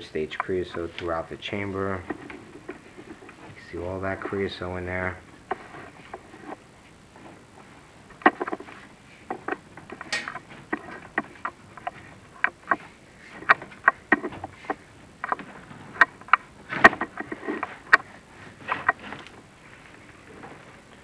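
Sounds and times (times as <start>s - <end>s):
rods knocking in flue: 0.0s - 15.4s.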